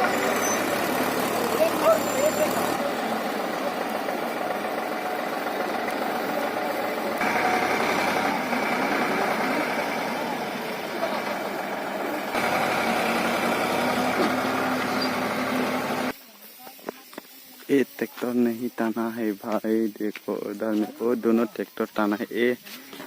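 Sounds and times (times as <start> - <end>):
tractor engine running: 0.0 - 16.2.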